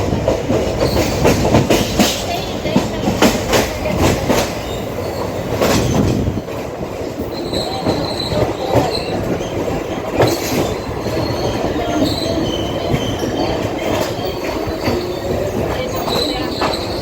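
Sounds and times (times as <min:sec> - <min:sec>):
train clanks: 0:00.0 - 0:17.0
train rumbling on rails: 0:00.0 - 0:17.0
high wheel squeals: 0:07.2 - 0:09.7, 0:10.3 - 0:17.0.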